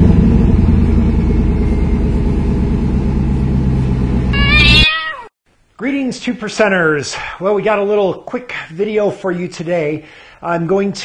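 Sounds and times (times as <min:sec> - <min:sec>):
car engine running: 0:00.0 - 0:04.8
cat meowing: 0:04.4 - 0:05.3.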